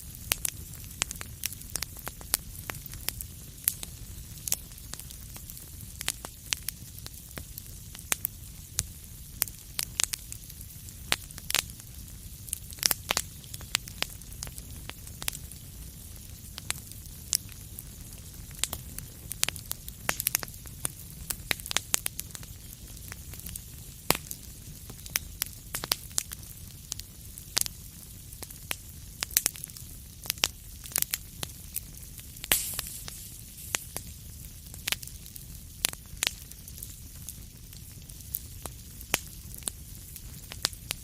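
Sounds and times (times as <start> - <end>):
low fire rumble: 0.0 - 41.0
wood fire crackling: 0.0 - 41.0
hissing fire flare: 29.8 - 36.9.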